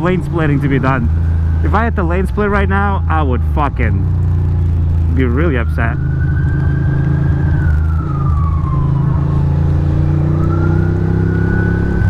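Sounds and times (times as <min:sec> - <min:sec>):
motorcycle engine running: 0:00.0 - 0:12.0
emergency siren wailing: 0:05.1 - 0:12.0.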